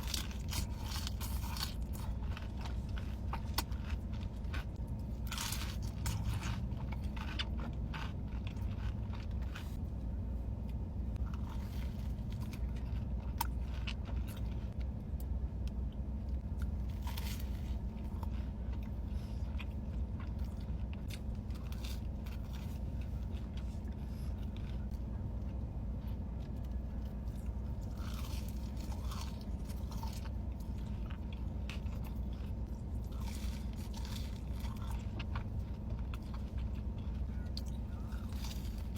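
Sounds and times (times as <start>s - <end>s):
crunchy chewing: 0.0s - 10.0s, 10.6s - 38.9s
steady low hum: 0.0s - 38.9s.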